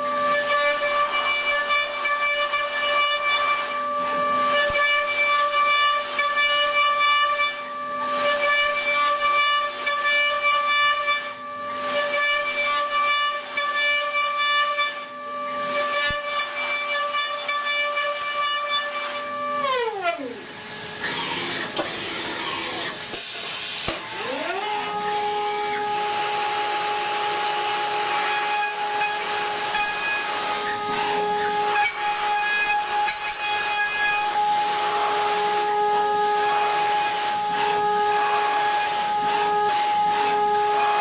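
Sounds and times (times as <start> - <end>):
machine spindle whining: 19.0 - 41.0.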